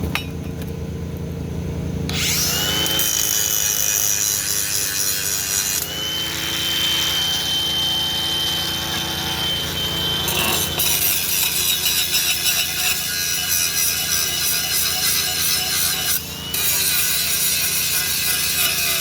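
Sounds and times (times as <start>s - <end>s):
harsh metalworking noise: 2.1s - 19.0s
thin high whine: 5.8s - 11.9s.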